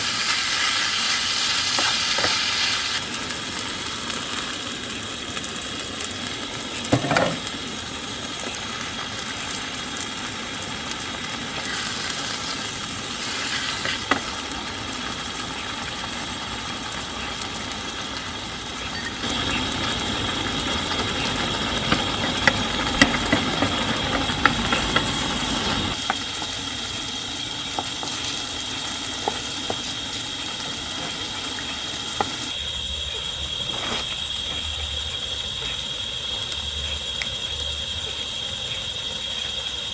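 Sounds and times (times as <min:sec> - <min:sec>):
utensil stirring in a pan: 0:00.0 - 0:03.1, 0:08.4 - 0:32.5
food sizzling in a pan: 0:00.0 - 0:39.9.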